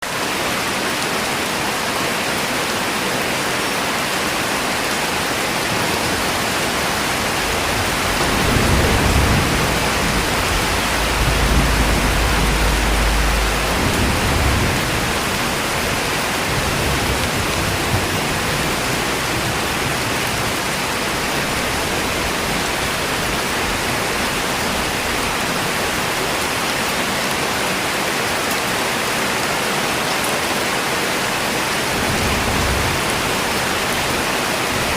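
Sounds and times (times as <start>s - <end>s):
heavy rain hissing: 0.1s - 34.9s
deep low rumble: 6.0s - 20.3s.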